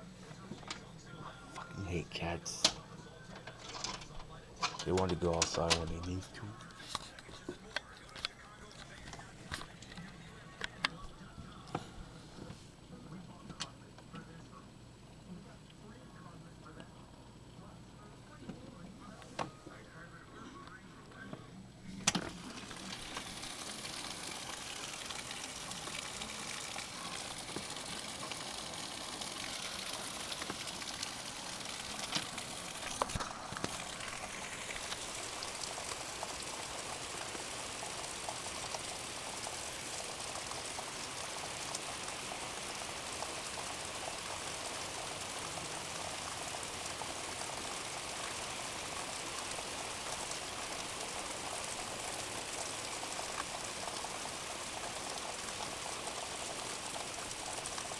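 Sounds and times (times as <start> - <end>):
heavy rain: 22.1 - 57.9.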